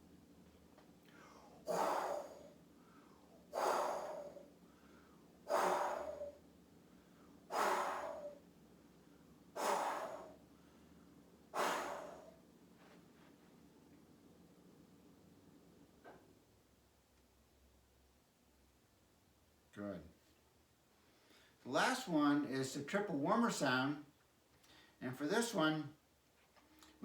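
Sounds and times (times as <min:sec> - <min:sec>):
person forcefully breathing out: 0:01.1 - 0:06.4, 0:07.5 - 0:08.4, 0:09.6 - 0:10.4, 0:11.5 - 0:12.4.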